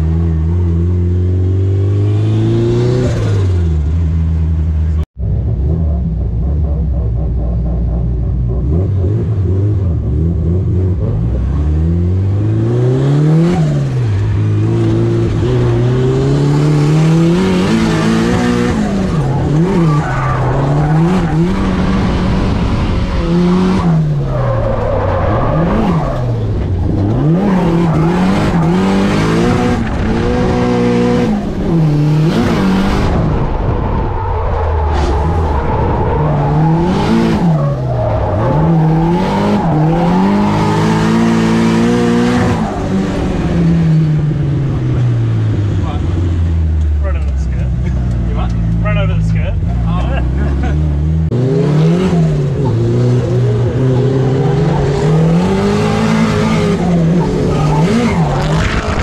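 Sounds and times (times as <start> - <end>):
turbocharged car engine revving: 0.0 - 59.0.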